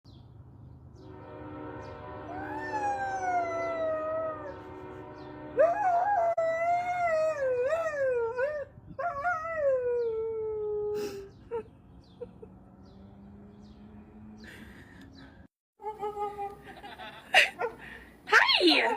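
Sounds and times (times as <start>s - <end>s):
husky howling: 2.3s - 4.6s.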